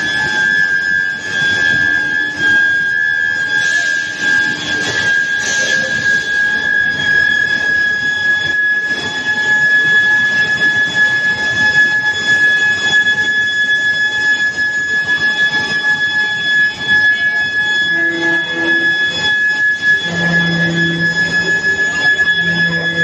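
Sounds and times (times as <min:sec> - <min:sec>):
furnace high-pitched whine: 0:00.0 - 0:23.0
rough mechanical noise: 0:17.8 - 0:23.0.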